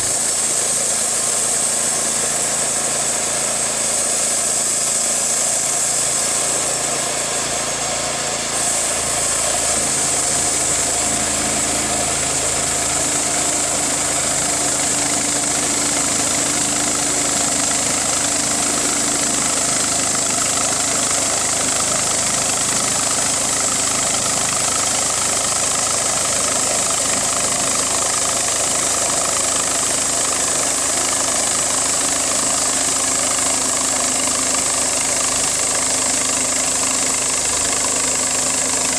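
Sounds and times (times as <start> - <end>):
engine running steadily: 0.0 - 38.9
bright hiss: 8.6 - 23.8.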